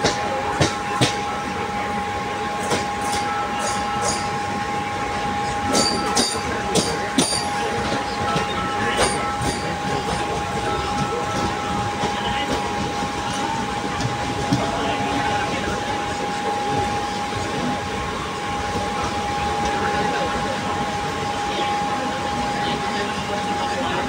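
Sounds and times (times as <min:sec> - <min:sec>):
train rumble inside carriage: 0:00.0 - 0:24.0
wheels clacking on track: 0:05.7 - 0:17.7.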